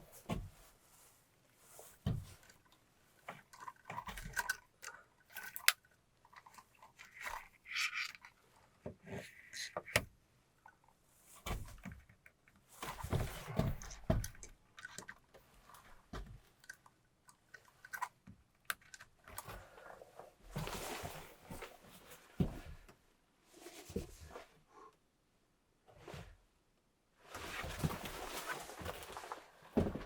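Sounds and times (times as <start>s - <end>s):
rustling: 27.2s - 30.0s.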